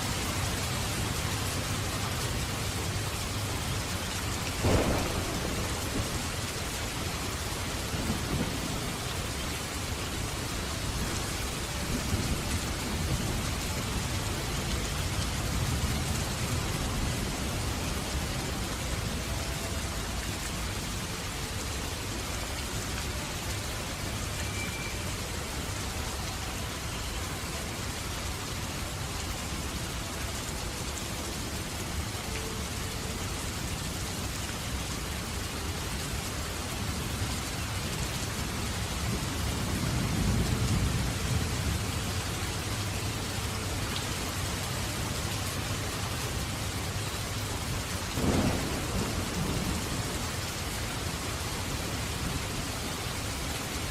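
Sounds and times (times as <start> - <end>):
heavy rain falling: 0.0 - 53.9
sharp crack of thunder: 4.6 - 9.0, 48.2 - 50.2
low roll of thunder: 4.6 - 9.1, 48.2 - 50.5.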